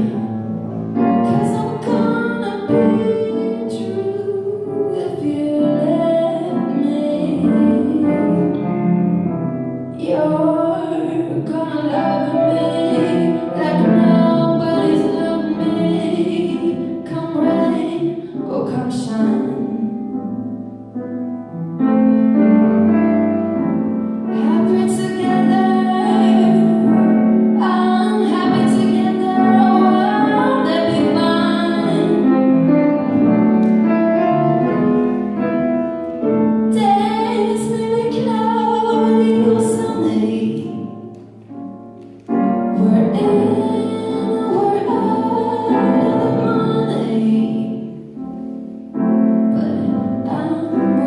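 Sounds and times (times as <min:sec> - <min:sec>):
woman singing jazz ballad: 0:00.0 - 0:00.4, 0:01.1 - 0:08.7, 0:09.9 - 0:20.3, 0:24.3 - 0:32.6, 0:36.7 - 0:41.1, 0:42.7 - 0:48.1, 0:49.5 - 0:51.0
piano accompaniment: 0:00.0 - 0:51.0.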